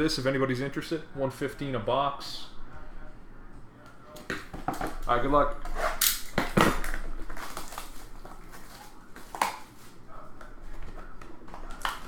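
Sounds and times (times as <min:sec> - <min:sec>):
card pack crinkling and tearing: 0:07.2 - 0:09.0.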